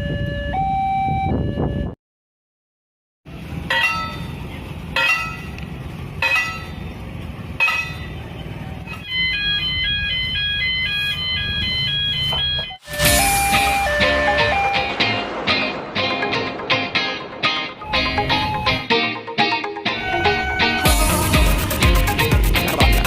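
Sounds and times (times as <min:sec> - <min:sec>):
level crossing alarm chime: 0:00.0 - 0:02.0, 0:09.0 - 0:15.4
high stepped alarm tones: 0:09.0 - 0:19.1, 0:20.0 - 0:22.2
low rumble: 0:12.9 - 0:19.0.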